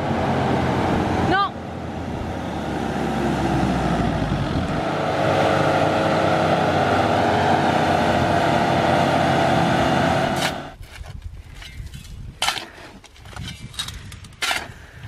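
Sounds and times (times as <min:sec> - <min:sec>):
diesel engine at high revs: 0:00.0 - 0:10.8.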